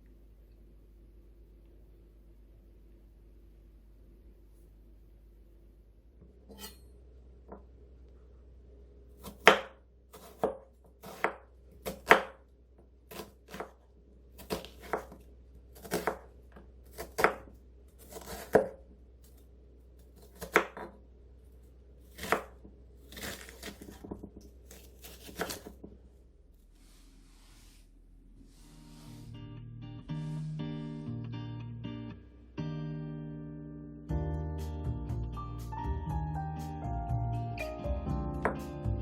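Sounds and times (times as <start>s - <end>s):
knife chopping on cutting board: 9.2s - 12.4s, 13.1s - 13.8s, 14.4s - 15.2s, 15.8s - 16.3s, 16.9s - 18.8s, 20.2s - 21.0s, 22.1s - 25.8s.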